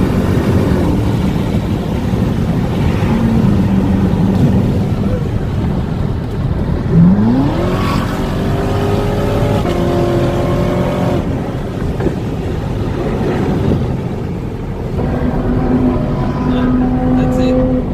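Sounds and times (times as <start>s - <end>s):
sports car engine accelerating: 0.0s - 17.9s
wind and road noise: 0.0s - 17.9s.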